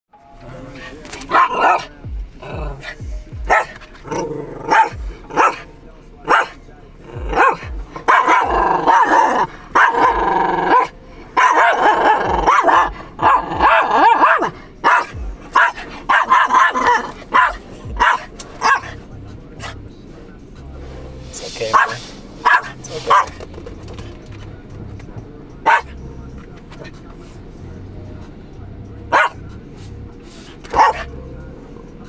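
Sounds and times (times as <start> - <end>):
dog barking: 1.3 - 1.9, 2.8 - 6.6, 7.2 - 19.0, 21.7 - 23.4, 25.6 - 26.0, 29.1 - 29.5, 30.7 - 31.2.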